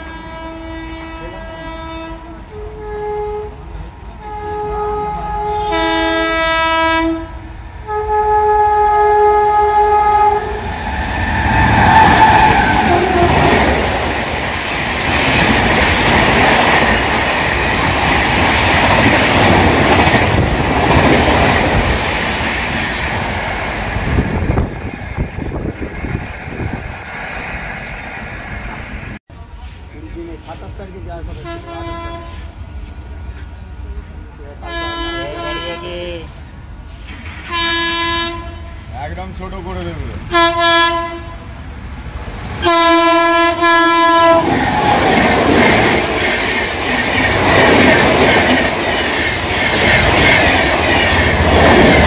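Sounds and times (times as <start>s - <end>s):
locomotive air horn blasts: 0.0s - 10.7s, 12.4s - 13.7s, 31.3s - 32.6s, 34.6s - 36.3s, 37.5s - 38.9s, 40.3s - 41.5s, 42.6s - 44.6s
train rushing past: 0.0s - 52.0s.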